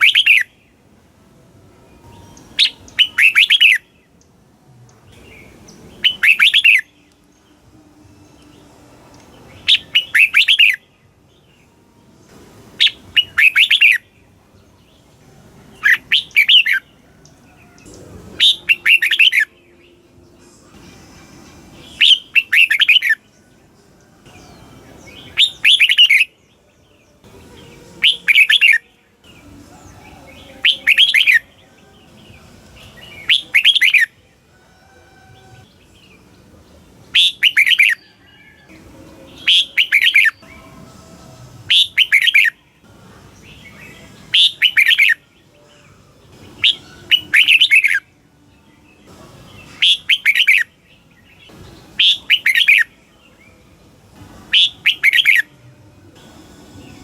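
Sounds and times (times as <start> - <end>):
bird singing whistled phrases: 0.0 - 0.5, 2.4 - 3.9, 6.0 - 7.0, 9.6 - 10.8, 12.8 - 14.1, 15.8 - 16.8, 18.4 - 19.6, 22.0 - 23.2, 25.1 - 26.3, 28.0 - 28.9, 30.4 - 31.5, 33.1 - 34.1, 37.2 - 38.6, 39.4 - 40.6, 41.7 - 42.6, 43.7 - 45.2, 46.6 - 48.0, 49.7 - 50.7, 52.0 - 52.9, 54.5 - 55.5.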